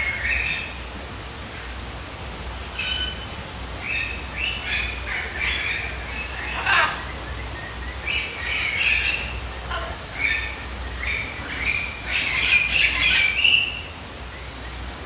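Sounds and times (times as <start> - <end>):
birds squawking: 2.8 - 13.9.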